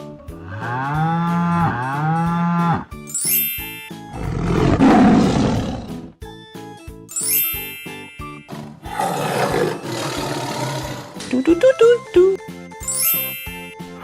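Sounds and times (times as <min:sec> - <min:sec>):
upbeat background music: 0:00.0 - 0:14.0
loud roar: 0:08.9 - 0:11.2.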